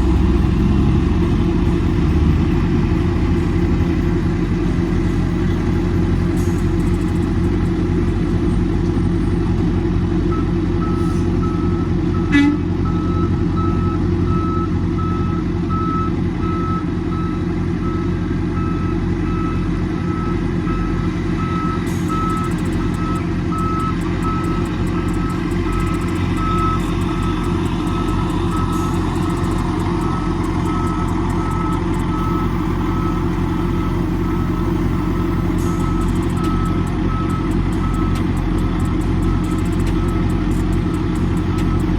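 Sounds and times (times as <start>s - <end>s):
diesel truck engine running: 0.0s - 41.9s
backup alarm beeping: 10.3s - 41.9s.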